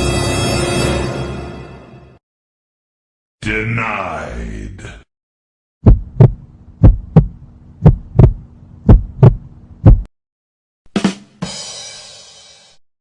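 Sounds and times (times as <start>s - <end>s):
heartbeat thumps: 5.8s - 10.1s
low hum: 5.8s - 10.1s.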